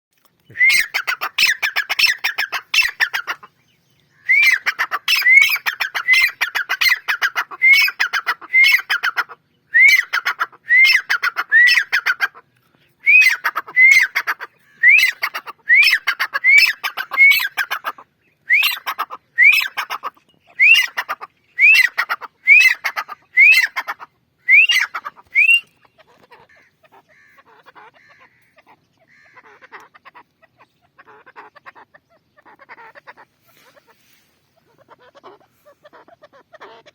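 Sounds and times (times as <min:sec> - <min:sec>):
francolin calling harshly: 0:00.6 - 0:03.5, 0:04.1 - 0:12.3, 0:13.0 - 0:25.9.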